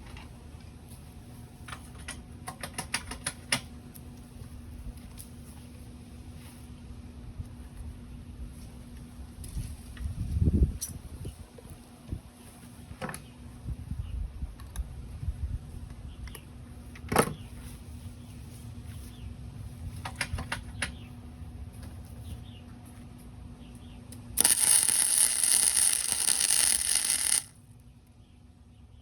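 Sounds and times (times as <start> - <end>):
welding arc crackling: 24.4 - 27.5.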